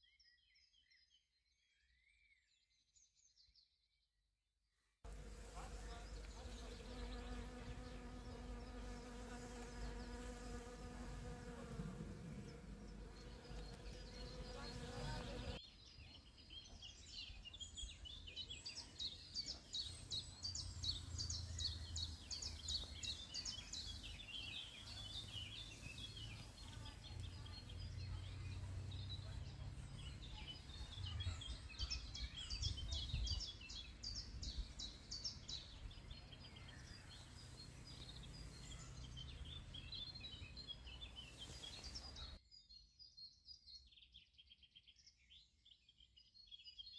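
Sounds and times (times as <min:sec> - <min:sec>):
flying insect buzzing: 0:05.1 - 0:15.6
songbirds twittering: 0:05.1 - 0:46.9.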